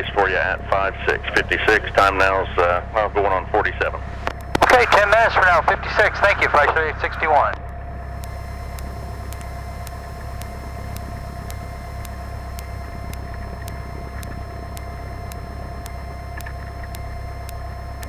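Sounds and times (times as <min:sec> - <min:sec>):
steady whine: 0:00.0 - 0:18.0
faint regular clicks: 0:04.2 - 0:05.6, 0:06.3 - 0:18.0.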